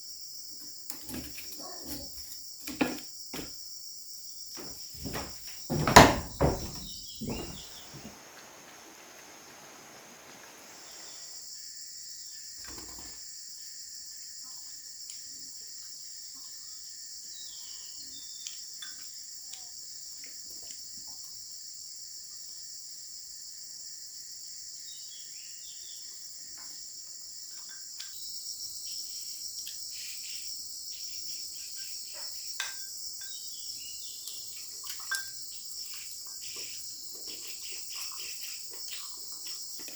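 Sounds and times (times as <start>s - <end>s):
insects chirring: 0.0s - 39.9s
thin insect tone: 0.0s - 39.9s
loud knocks: 5.0s - 8.1s.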